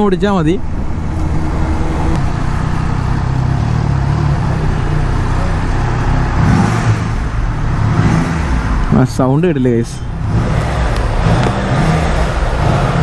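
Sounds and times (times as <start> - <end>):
motorcycle engine running: 0.6 - 8.8.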